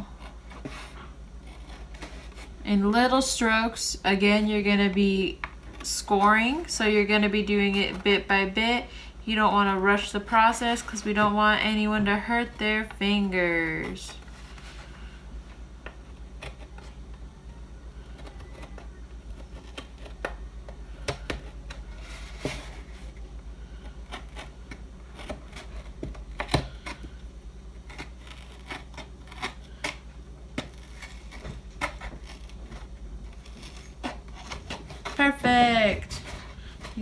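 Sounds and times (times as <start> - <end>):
steady low hum: 0.0 - 37.0
knife cutting cardboard: 18.0 - 20.4, 21.0 - 37.0.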